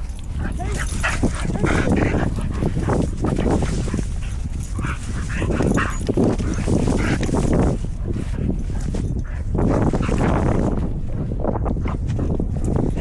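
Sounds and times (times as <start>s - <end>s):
wind buffeting microphone: 0.0s - 13.0s
dogs barking: 0.4s - 7.3s.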